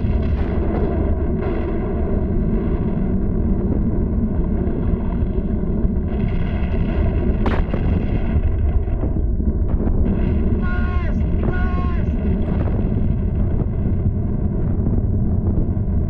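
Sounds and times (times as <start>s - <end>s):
heavy volcano rumble: 0.0s - 16.0s
sharp crack: 6.4s - 8.7s.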